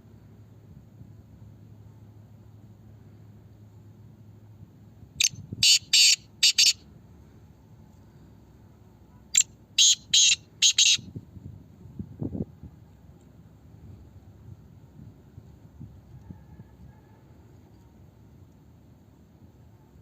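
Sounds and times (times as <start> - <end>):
bird calling harshly: 5.2 - 6.8, 9.4 - 11.0.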